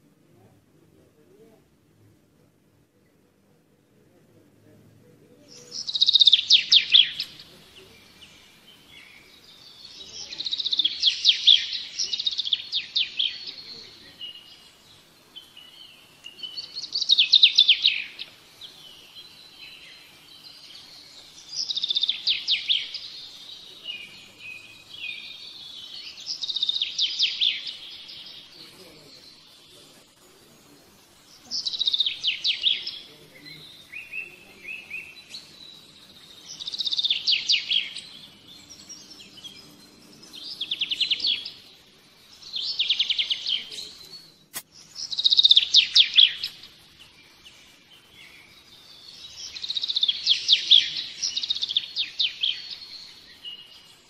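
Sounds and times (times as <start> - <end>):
soft bird twittering: 5.1 - 54.0
songbird trilling: 5.5 - 14.7, 15.4 - 29.1, 31.4 - 41.8, 42.4 - 46.7, 48.3 - 53.9.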